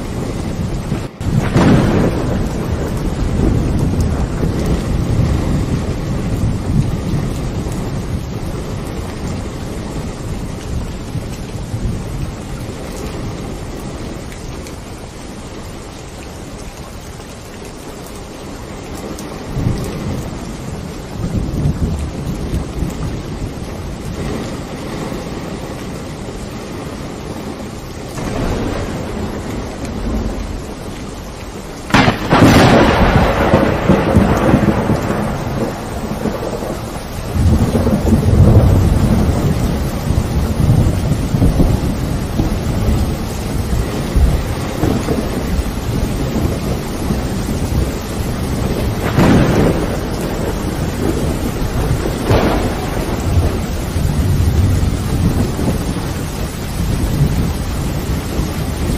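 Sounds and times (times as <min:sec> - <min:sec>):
sharp thunderclap: 0:00.0 - 0:09.3, 0:28.2 - 0:30.9, 0:31.9 - 0:58.9
steady rain: 0:00.0 - 0:58.9
thunder rumbling: 0:00.0 - 0:58.9.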